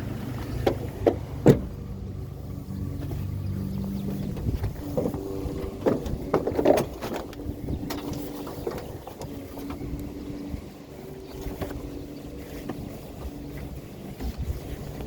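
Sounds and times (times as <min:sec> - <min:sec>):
vehicle engine hum: 0:00.0 - 0:15.0
knocks and rattles: 0:03.0 - 0:10.5.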